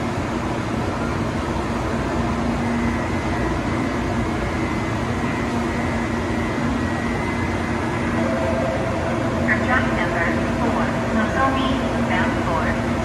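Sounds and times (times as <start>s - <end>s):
train humming and whirring: 0.0s - 13.0s
faint steady tones: 2.6s - 13.0s.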